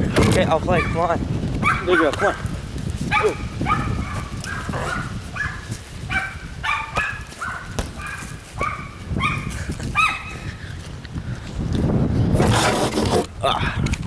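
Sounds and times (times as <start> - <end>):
thumps: 6.9 - 8.2.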